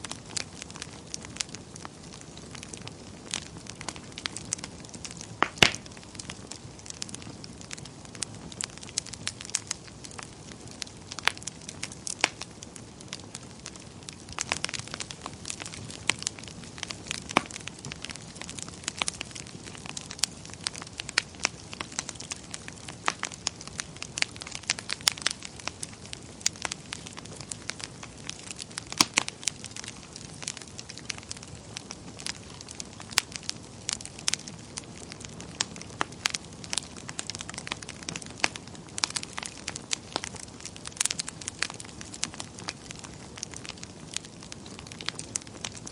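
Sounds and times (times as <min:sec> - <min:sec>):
fire crackling and popping: 0:00.0 - 0:45.9.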